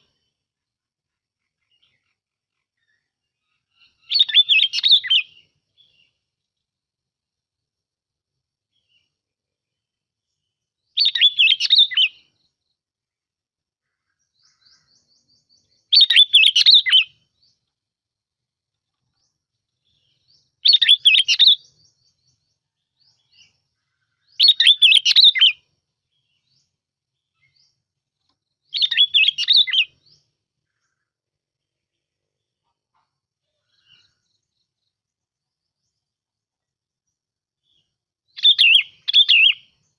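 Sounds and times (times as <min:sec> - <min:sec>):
bulbul singing: 0:02.8 - 0:06.2, 0:10.9 - 0:12.6, 0:14.4 - 0:17.6, 0:19.2 - 0:31.0, 0:37.6 - 0:39.9.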